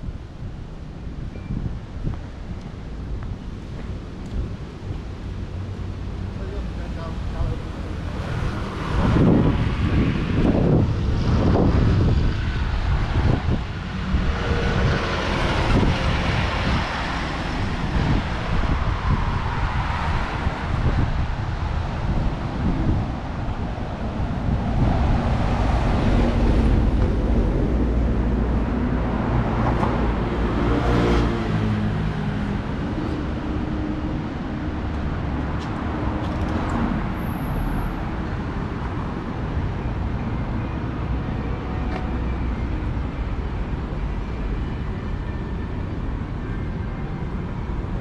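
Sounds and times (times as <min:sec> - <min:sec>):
traffic rumble: 0:00.0 - 0:48.0
vehicle passing by: 0:07.0 - 0:38.8.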